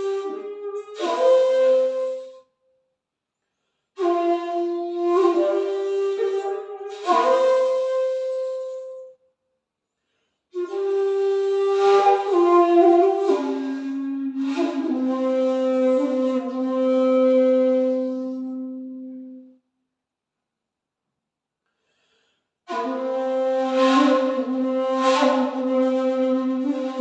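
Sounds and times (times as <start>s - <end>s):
bamboo flute playing slow notes: 0.0s - 2.5s, 4.0s - 9.2s, 10.6s - 19.6s, 22.7s - 27.0s.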